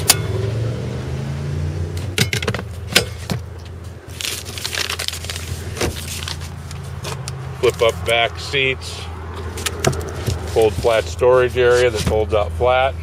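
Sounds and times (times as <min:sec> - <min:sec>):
rustling scrape: 0:04.1 - 0:07.1, 0:09.5 - 0:12.2.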